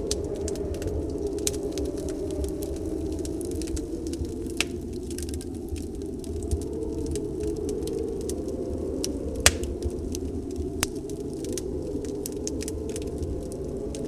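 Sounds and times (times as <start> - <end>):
snowstorm wind rushing: 0.0 - 14.0
wood fire crackling: 0.0 - 14.0
sharp fire pops: 9.4 - 10.0.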